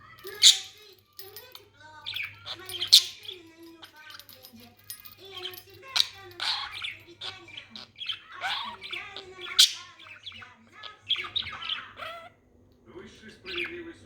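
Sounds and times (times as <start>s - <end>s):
budgerigar chattering: 6.0s - 12.4s.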